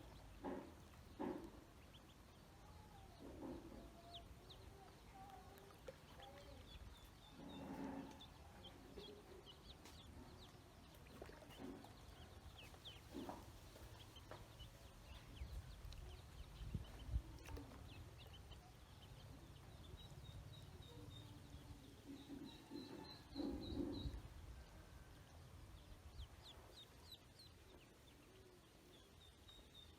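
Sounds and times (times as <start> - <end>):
ducklings peeping: 0.0 - 24.4.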